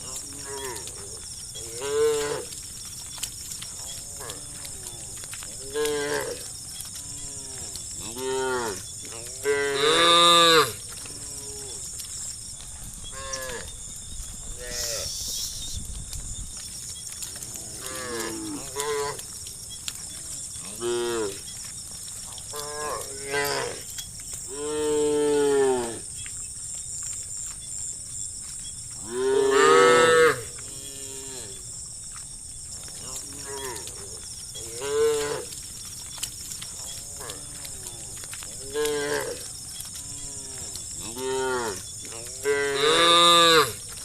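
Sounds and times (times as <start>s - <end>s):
faint high hiss: 14.7s - 15.8s.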